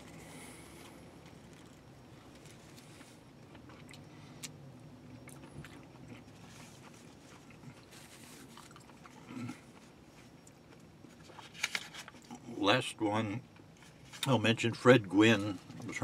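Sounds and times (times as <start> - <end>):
faint chewing: 0.0 - 12.4.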